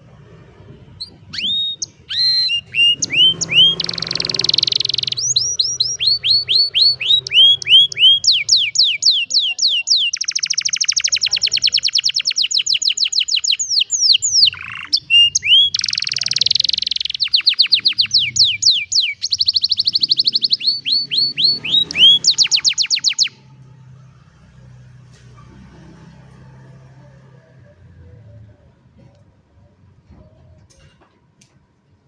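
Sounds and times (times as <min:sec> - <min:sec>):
canary singing trills: 0:00.9 - 0:23.8.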